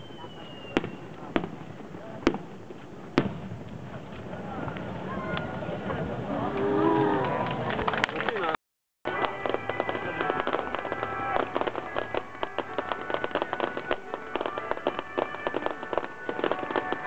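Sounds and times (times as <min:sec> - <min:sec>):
fireworks crackling and popping: 0:00.0 - 0:17.0
music playing: 0:09.1 - 0:17.0.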